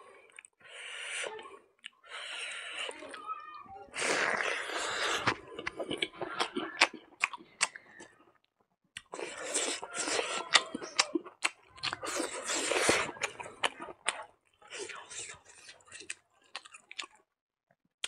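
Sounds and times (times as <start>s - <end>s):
person chewing wetly with crunches: 0.0s - 0.6s, 3.9s - 8.2s, 9.0s - 17.3s.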